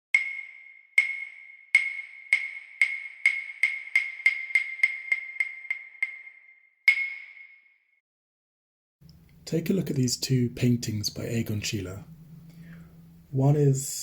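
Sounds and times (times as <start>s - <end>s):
wooden clappers clacking: 0.2s - 7.3s.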